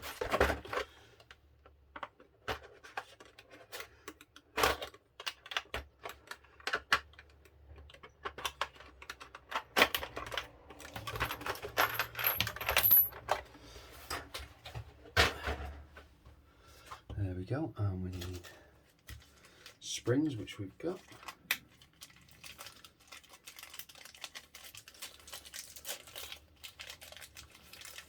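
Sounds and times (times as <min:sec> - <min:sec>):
small plastic parts clicking and rattling: 0:00.0 - 0:13.5, 0:20.8 - 0:28.0.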